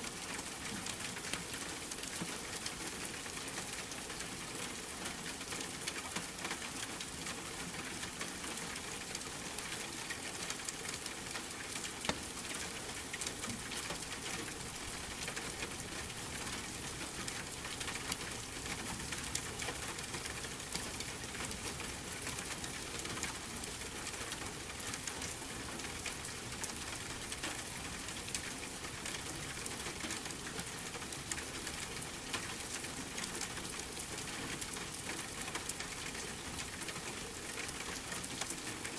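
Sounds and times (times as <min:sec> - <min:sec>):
steady rain crackling and popping: 0:00.0 - 0:38.9.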